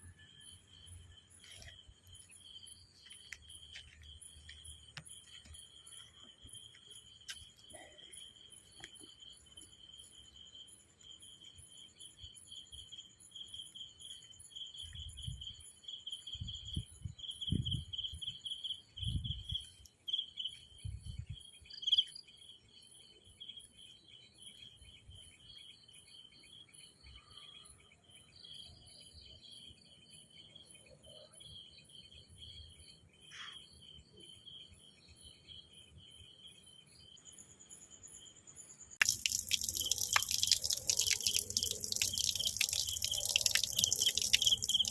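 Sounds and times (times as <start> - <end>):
insects trilling: 39.0 - 44.9.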